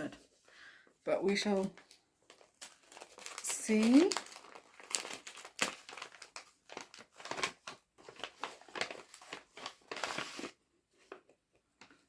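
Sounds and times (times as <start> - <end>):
packaging crinkling and rustling: 1.2 - 12.0.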